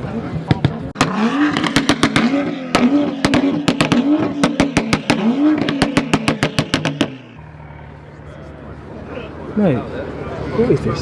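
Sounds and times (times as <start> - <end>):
exhaust crackles and pops: 0.4 - 7.4
car engine revving: 0.4 - 11.0.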